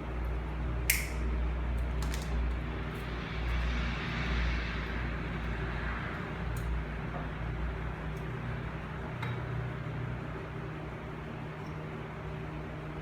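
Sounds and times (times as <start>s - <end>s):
low machine hum: 0.0s - 13.0s
hiss: 2.7s - 7.1s.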